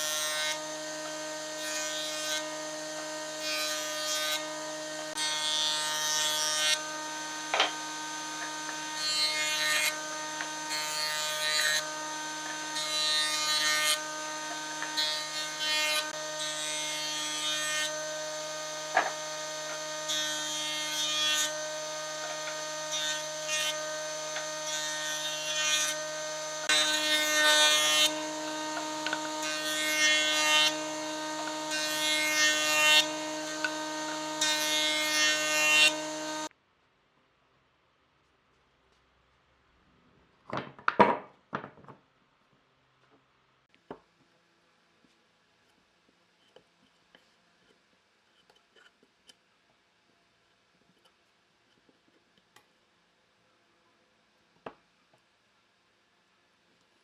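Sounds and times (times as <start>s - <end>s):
power tool whine: 0.0s - 36.5s
tool cutting wood: 0.0s - 36.5s.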